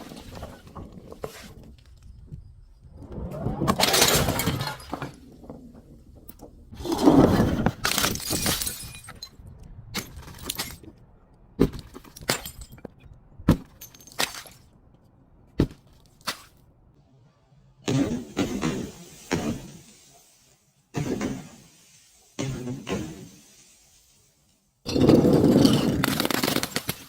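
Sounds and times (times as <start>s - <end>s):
glass crunching: 7.8s - 9.4s, 24.9s - 27.0s
glass shards clinking: 7.9s - 9.4s.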